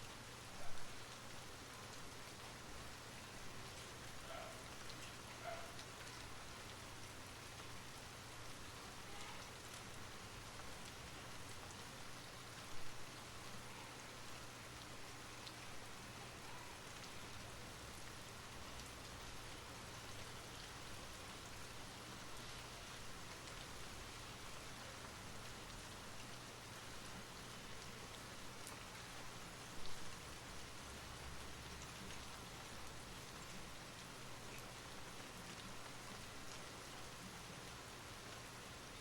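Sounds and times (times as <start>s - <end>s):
steady rain hiss: 0.0s - 39.0s.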